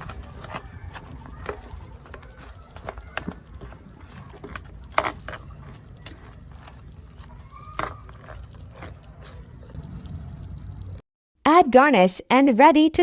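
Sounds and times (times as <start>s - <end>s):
low hum: 3.4s - 11.0s.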